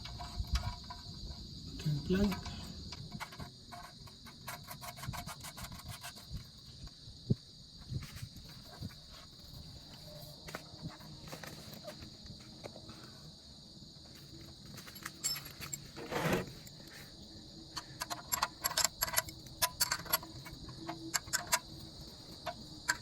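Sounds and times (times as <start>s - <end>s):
insect chirring: 0.0s - 23.0s
metal clicks and knocks: 18.0s - 21.8s.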